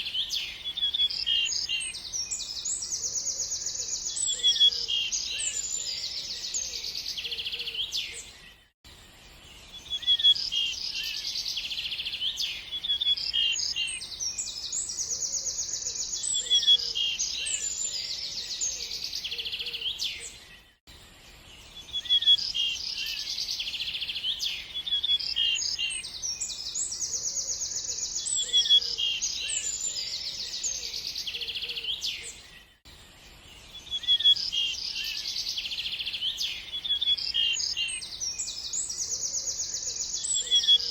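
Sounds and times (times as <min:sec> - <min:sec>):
songbirds chirping and trilling: 0:00.0 - 0:40.9
low bird calls: 0:21.9 - 0:32.7.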